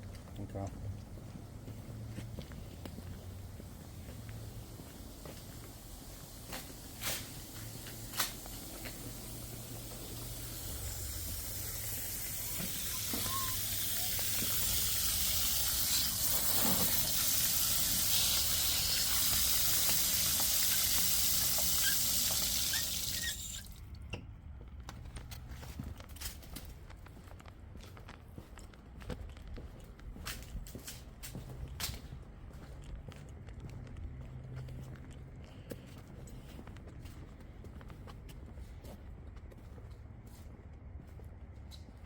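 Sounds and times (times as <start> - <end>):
water rushing under pressure: 8.2 - 23.8.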